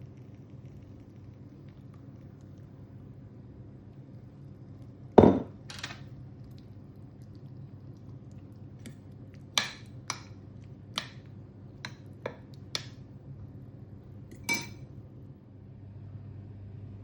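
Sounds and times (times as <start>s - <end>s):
kitchenware clinking: 5.2s - 6.0s, 14.3s - 14.8s.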